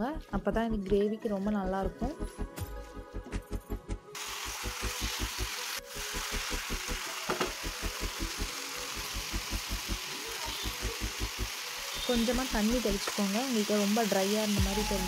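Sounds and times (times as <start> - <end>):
food sizzling in a pan: 4.2 - 15.0.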